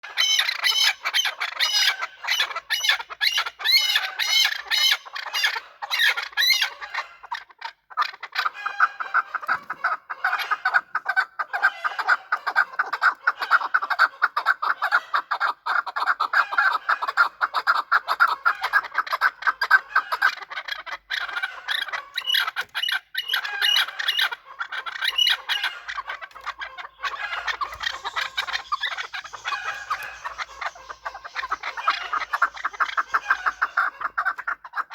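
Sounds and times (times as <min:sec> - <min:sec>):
partridges clucking: 0:20.7 - 0:34.6.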